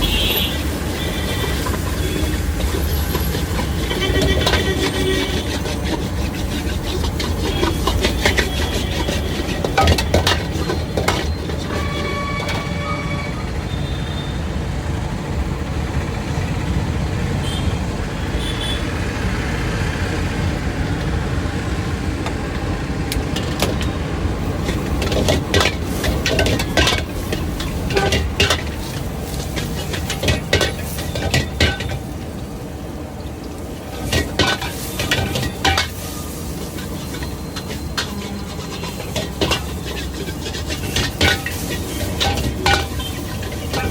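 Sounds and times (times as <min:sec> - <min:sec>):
metal utensils clinking on cookware: 0:00.0 - 0:12.8, 0:23.3 - 0:32.3, 0:33.9 - 0:43.9
low rumble of street noise: 0:00.0 - 0:43.9.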